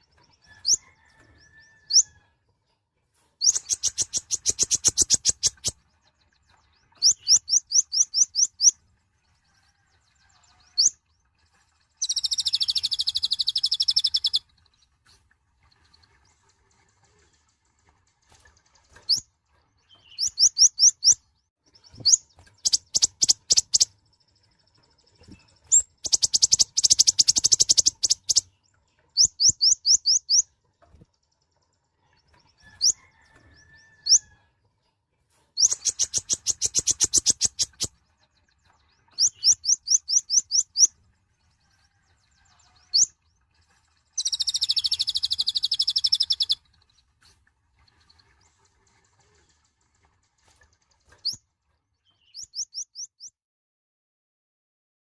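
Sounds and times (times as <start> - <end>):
bird chirping rapidly: 3.4 - 5.8, 6.8 - 8.8, 10.7 - 11.0, 12.0 - 14.5, 19.8 - 24.4, 25.1 - 30.5, 32.6 - 33.3, 35.6 - 38.0, 39.0 - 41.0, 42.8 - 43.1, 44.1 - 47.0, 52.0 - 53.3.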